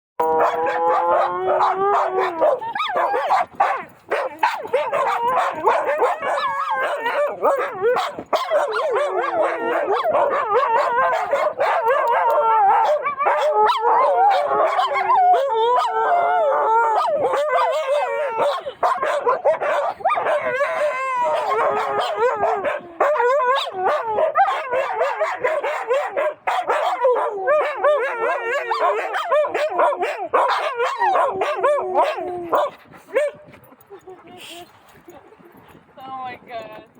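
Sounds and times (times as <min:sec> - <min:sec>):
dogs howling and yipping: 0:00.2 - 0:33.4.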